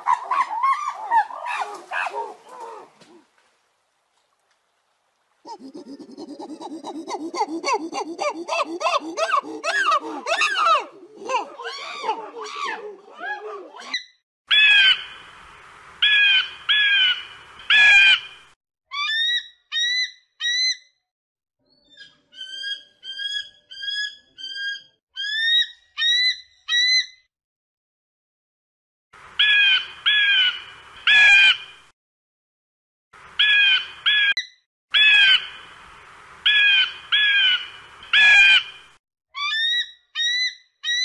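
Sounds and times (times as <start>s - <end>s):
eagle squawking: 5.5s - 12.8s.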